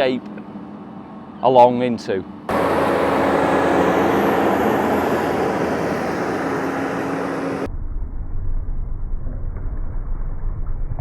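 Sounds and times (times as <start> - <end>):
dull low rumble: 2.5 - 8.7.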